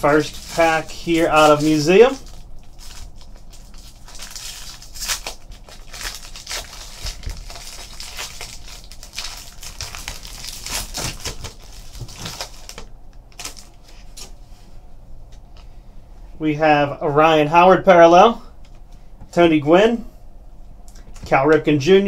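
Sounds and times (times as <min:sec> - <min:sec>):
wrapper crackling as torn open: 0:00.0 - 0:14.3.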